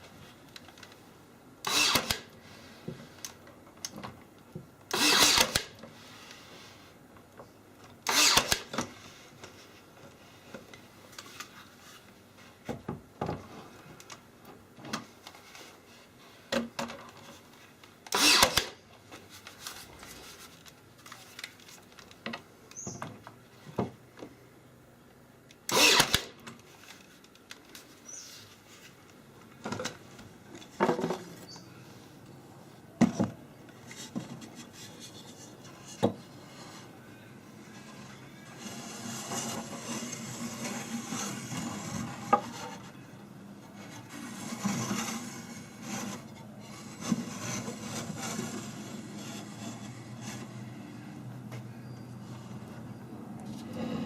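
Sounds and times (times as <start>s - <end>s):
wooden parts knocking and scraping: 29.6s - 31.5s.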